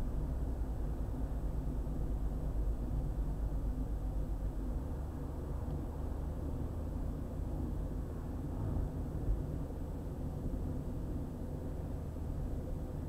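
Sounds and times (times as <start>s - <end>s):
car road noise rumble: 0.0s - 13.0s.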